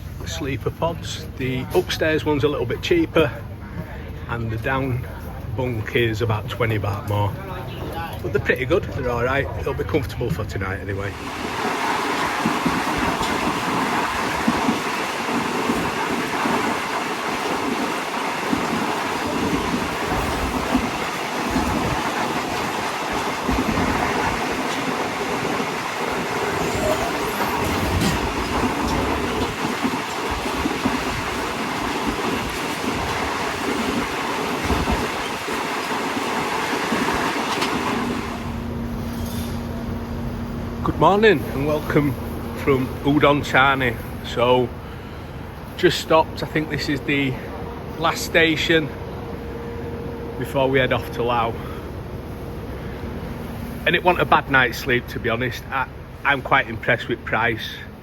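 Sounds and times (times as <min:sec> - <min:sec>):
train rumbling on track: 0:00.0 - 0:58.0
wheels clattering: 0:10.4 - 0:39.7.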